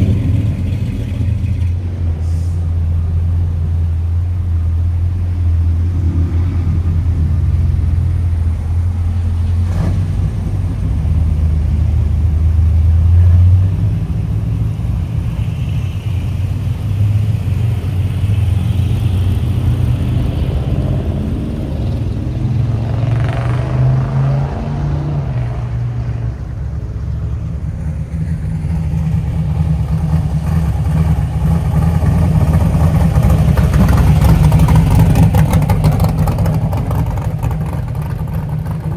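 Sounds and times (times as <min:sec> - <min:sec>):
car engines pulling away: 0:00.0 - 0:38.9.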